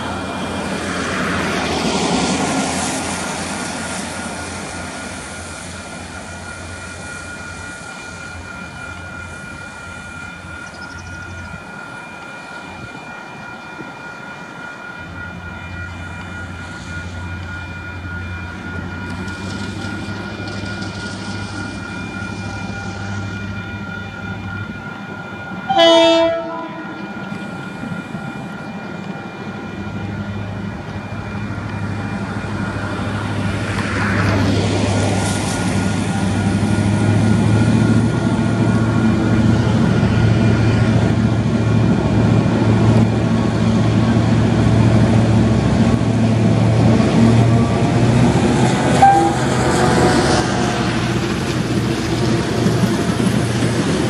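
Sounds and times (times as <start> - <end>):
diesel locomotive engine: 0.0 - 54.0
train wheels clattering on rails: 0.0 - 54.0
level crossing bells ringing: 3.3 - 43.5
locomotive horn blast: 25.7 - 27.1, 48.9 - 50.4.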